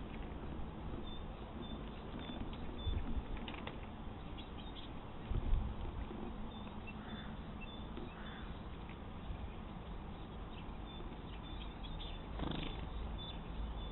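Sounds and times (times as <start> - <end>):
faint bird chirps: 6.4 - 13.9.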